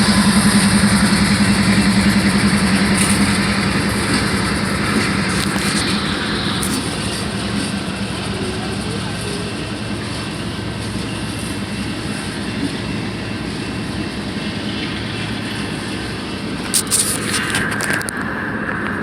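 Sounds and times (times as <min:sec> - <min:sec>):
sharp clanks: 0:00.0 - 0:07.9
train rumbling past: 0:00.0 - 0:19.0.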